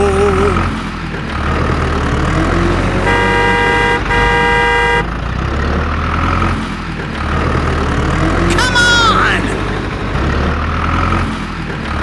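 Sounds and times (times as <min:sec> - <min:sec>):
engine rumbling: 0:00.0 - 0:12.0
vehicle horn blasts: 0:02.9 - 0:05.3.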